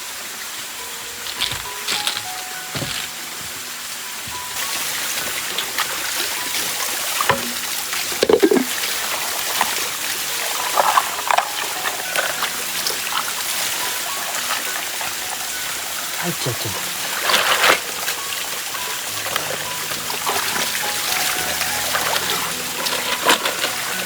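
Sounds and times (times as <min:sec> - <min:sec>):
stream water running: 0:00.0 - 0:24.0
short splashes and knocks: 0:07.2 - 0:09.8.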